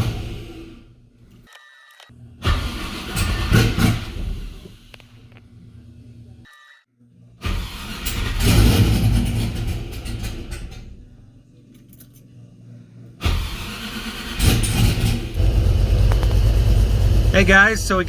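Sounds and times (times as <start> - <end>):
car engine starting and running: 0.0 - 1.0, 2.3 - 5.4, 7.4 - 11.0, 13.2 - 18.0.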